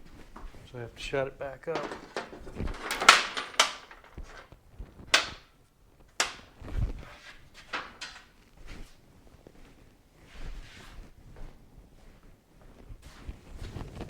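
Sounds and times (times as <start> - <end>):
garage door clattering: 1.7 - 5.5, 6.1 - 8.4.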